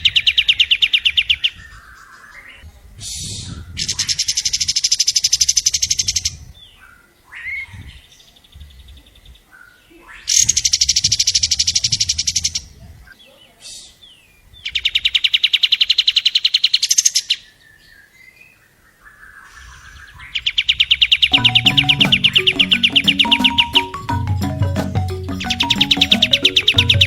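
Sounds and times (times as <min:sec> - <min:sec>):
bird singing rapid trills: 0:20.7 - 0:27.0.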